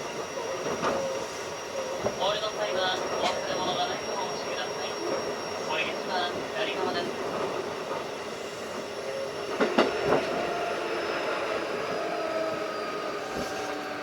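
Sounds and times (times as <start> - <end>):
electric train rumble and whine: 0.0 - 14.0
train wheels clacking: 2.0 - 11.6.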